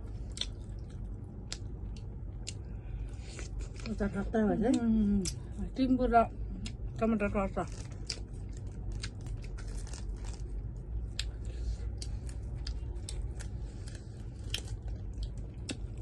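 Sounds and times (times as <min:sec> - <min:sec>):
person chewing: 0:00.0 - 0:04.0, 0:07.7 - 0:16.0
steady low hum: 0:00.0 - 0:16.0.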